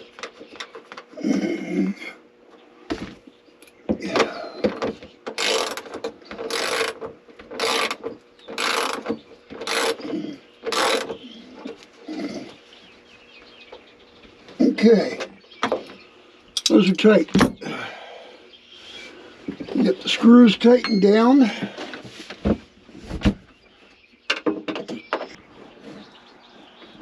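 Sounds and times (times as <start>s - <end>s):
ratchet wrench clicking: 5.4s - 5.9s, 6.5s - 7.0s, 7.6s - 8.0s, 8.6s - 10.0s.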